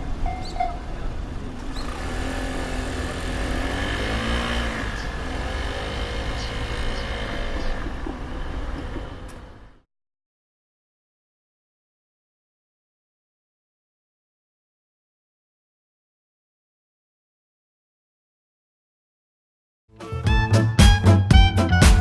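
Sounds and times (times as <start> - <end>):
steady traffic rumble: 0.0 - 9.8
vehicle engines pulling away: 0.0 - 9.8.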